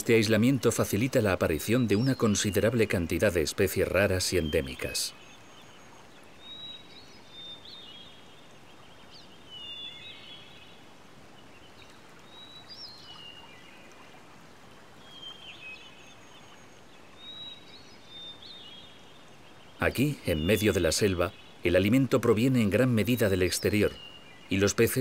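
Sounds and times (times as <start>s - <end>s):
high chirping bird calls: 0.0s - 5.5s, 19.7s - 25.0s
faint steady hiss: 0.0s - 25.0s.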